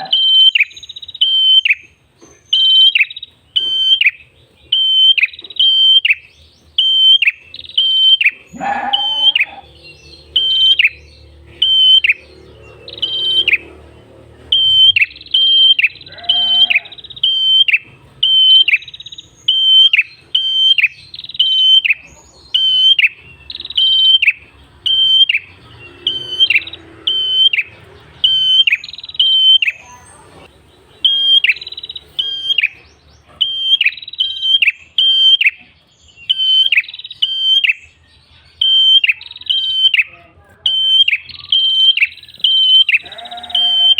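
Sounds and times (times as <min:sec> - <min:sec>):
bird calling short high notes: 0:04.8 - 0:09.7.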